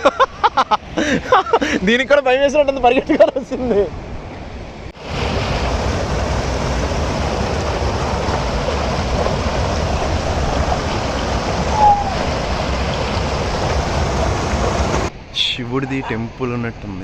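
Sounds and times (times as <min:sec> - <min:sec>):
flowing water rushing: 0:05.0 - 0:15.1
falling whistle-like tone: 0:11.7 - 0:12.3.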